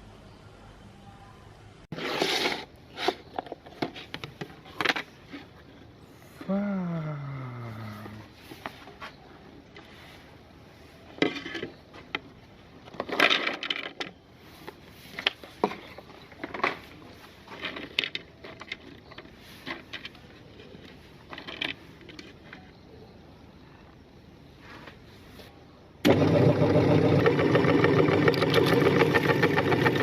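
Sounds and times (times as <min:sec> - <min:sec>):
meat grinder crunching: 0:26.1 - 0:30.0.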